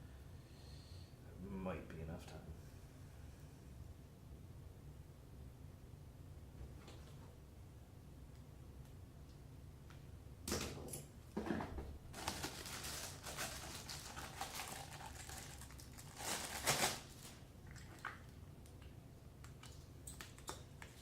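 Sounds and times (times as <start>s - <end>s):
packaging rustling and crinkling: 12.1s - 18.3s.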